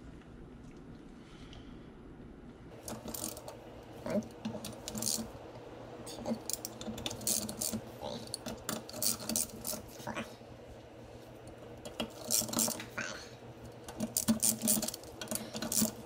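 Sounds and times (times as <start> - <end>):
hand ratchet clicking: 4.6 - 5.3, 6.4 - 9.9, 11.8 - 12.8, 13.8 - 16.0.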